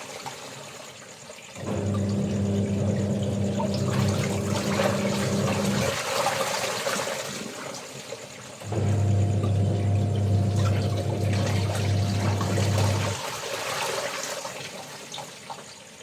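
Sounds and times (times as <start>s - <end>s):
water running and splashing: 0.0s - 15.9s
low motor hum: 1.6s - 6.0s, 8.7s - 13.2s.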